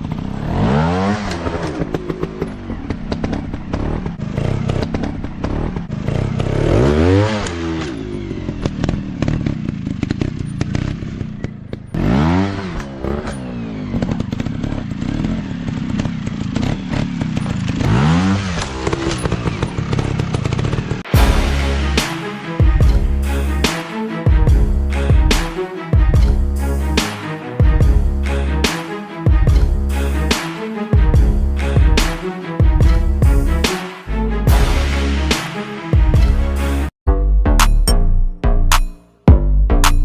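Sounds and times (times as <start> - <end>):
dirt bike engine revving: 0.0 - 30.5.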